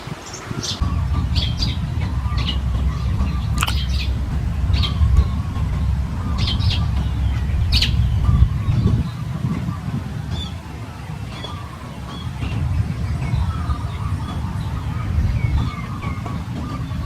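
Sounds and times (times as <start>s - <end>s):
bird chirping: 0.7s - 17.0s
steady low rumble: 0.8s - 17.0s.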